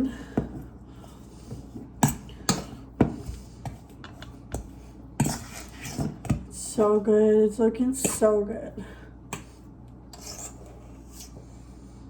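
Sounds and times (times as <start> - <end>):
fork scraping a bowl: 3.2 - 6.4, 10.1 - 11.6.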